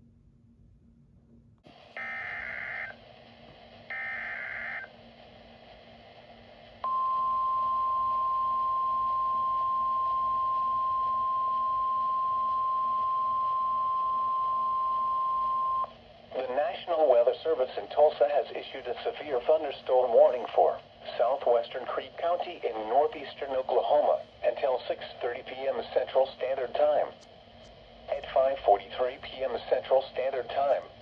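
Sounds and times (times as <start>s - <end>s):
steady alarm tone: 1.9s - 3.0s, 3.9s - 4.9s, 6.8s - 15.9s
digital data bursts: 2.0s - 3.0s, 3.9s - 4.9s.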